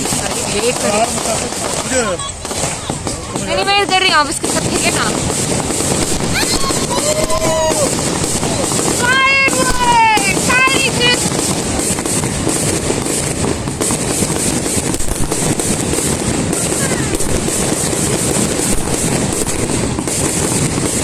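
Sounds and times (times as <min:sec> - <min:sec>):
fireworks crackling and bursting: 0:00.0 - 0:21.0.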